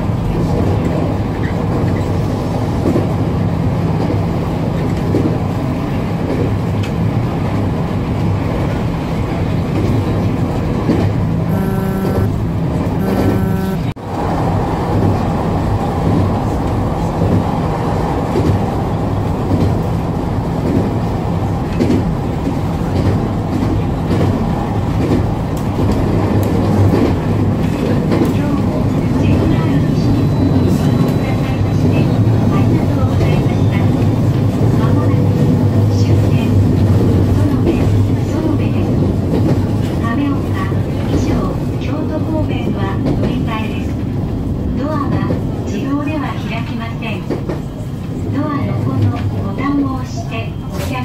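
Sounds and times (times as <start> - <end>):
train wheels rumbling on rails: 0.0 - 11.5, 14.1 - 51.0
low motor hum: 11.5 - 13.9
short pitched tones: 11.5 - 13.9.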